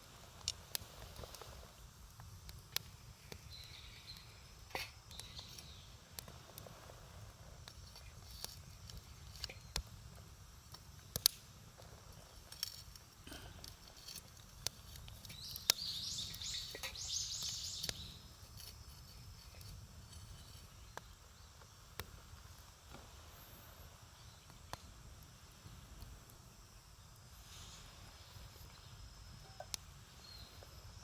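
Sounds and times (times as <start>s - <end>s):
campfire crackling and popping: 0.0s - 31.0s
bird singing: 3.4s - 4.5s, 15.2s - 18.3s.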